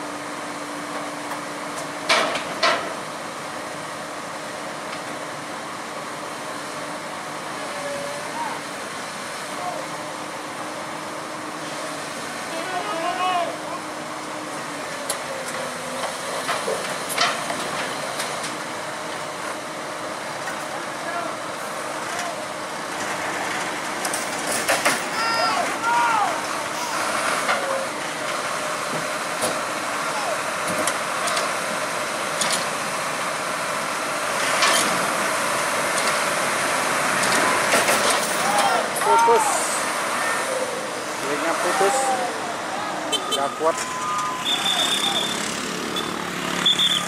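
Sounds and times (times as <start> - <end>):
heavy machinery engine running: 13.5 - 47.0
heavy machinery hissing: 39.1 - 42.7.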